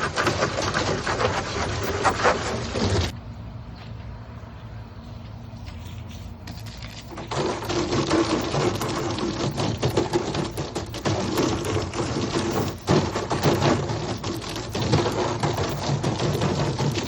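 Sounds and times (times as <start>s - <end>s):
water spray blasting plastic bin: 0.0s - 3.2s, 7.0s - 17.0s.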